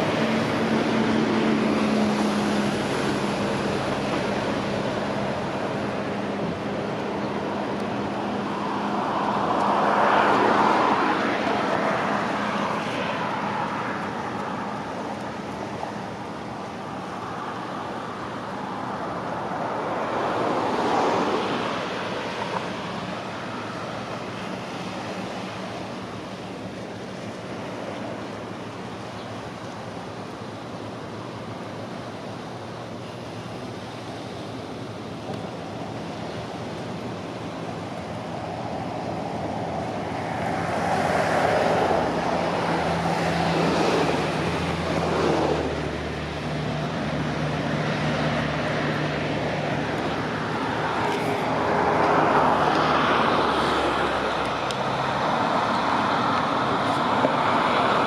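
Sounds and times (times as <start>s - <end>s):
rushing noise: 38.0s - 58.0s.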